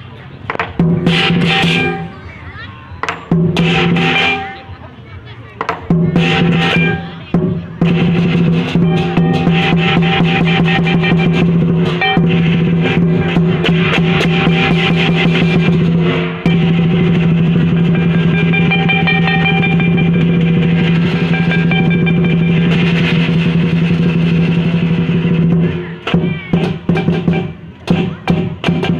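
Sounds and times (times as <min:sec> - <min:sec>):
drum beaten in fast rolls: 0:00.5 - 0:05.0, 0:05.6 - 0:28.9
clashing cymbals: 0:00.8 - 0:02.4, 0:03.1 - 0:04.8, 0:05.9 - 0:28.9
steady ringing tone: 0:16.5 - 0:23.7.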